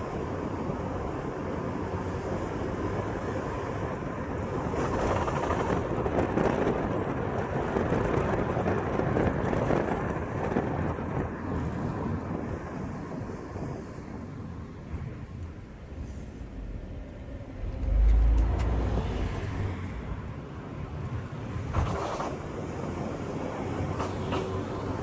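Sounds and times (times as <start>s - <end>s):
minivan rumbling on acceleration: 0.0s - 25.0s.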